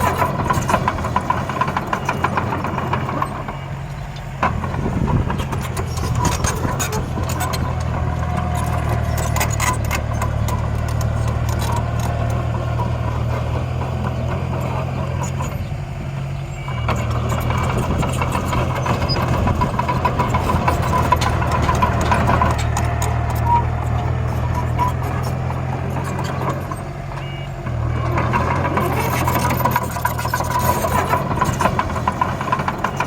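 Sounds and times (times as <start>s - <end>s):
light rattles: 0.0s - 15.8s
heavy machinery engine running: 0.0s - 33.0s.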